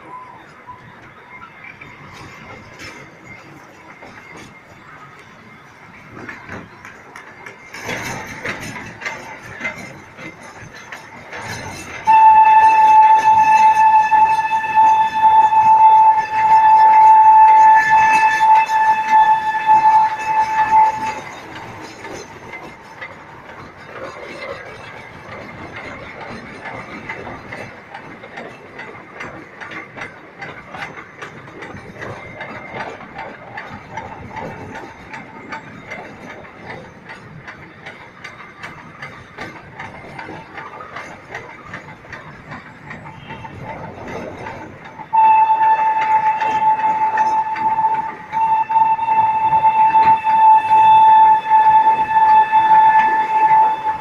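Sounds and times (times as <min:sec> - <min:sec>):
train wheels clattering: 0:00.0 - 0:54.0
train whistle blowing: 0:11.7 - 0:22.2, 0:45.1 - 0:54.0.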